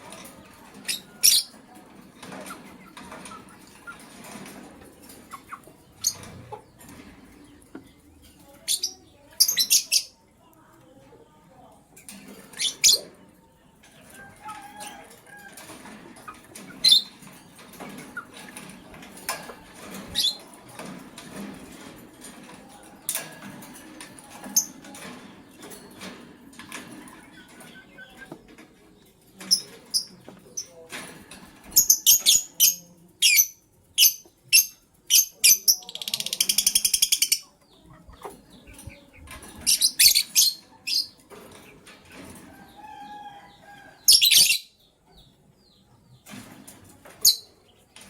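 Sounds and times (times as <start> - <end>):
lovebirds chirping: 31.8 - 41.3.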